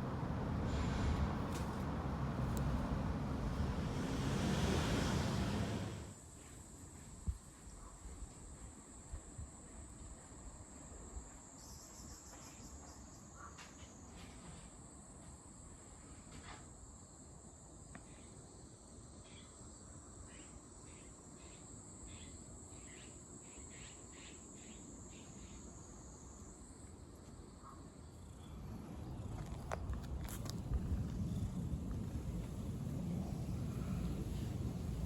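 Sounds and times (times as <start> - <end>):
high-pitched insect trill: 11.2 - 13.3.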